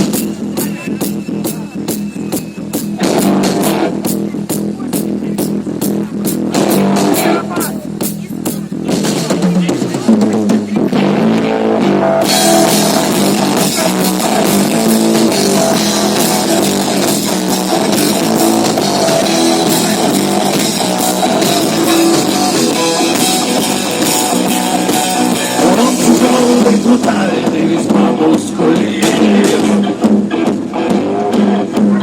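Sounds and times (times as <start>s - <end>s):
drum kit playing: 0.0s - 32.0s
electric guitar: 10.8s - 32.0s.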